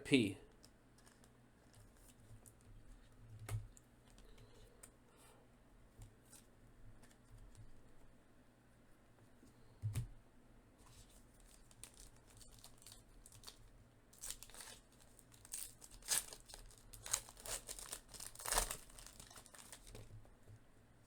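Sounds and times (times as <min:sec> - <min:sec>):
card pack wrapper tearing: 0:11.4 - 0:13.6, 0:14.2 - 0:20.1.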